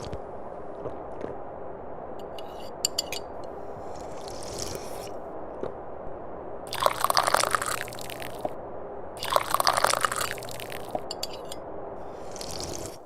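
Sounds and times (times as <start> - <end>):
tea being sipped: 0.0 - 0.2, 2.3 - 5.2, 6.7 - 8.5, 9.2 - 13.0
steady low hum: 0.0 - 13.0.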